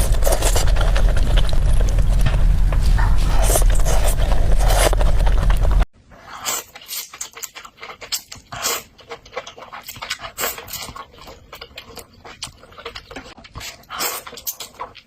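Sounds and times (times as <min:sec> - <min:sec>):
slurping: 0:02.8 - 0:15.0
chewing and mouth clicks: 0:06.4 - 0:15.0.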